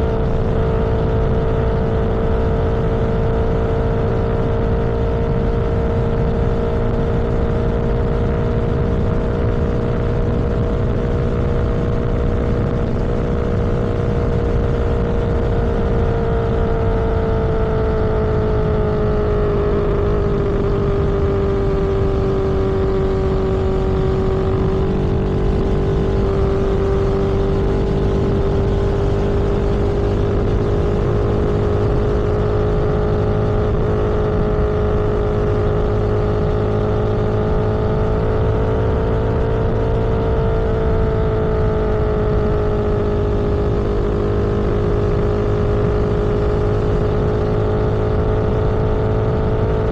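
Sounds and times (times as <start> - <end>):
droning engine tone: 0.0 - 49.9
vehicle engine and road hum: 0.0 - 49.9.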